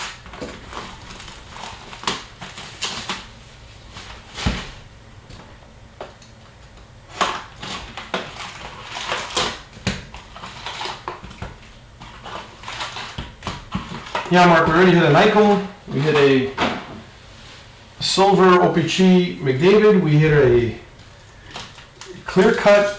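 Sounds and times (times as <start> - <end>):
wrapping and cardboard rustling: 0.0 - 4.9, 7.1 - 16.4, 21.3 - 22.9.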